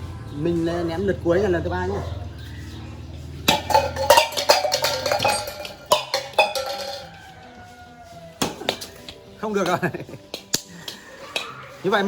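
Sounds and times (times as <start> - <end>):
ball hitting metal cans: 3.4 - 7.3, 8.4 - 9.1
cans clattering: 3.5 - 7.2.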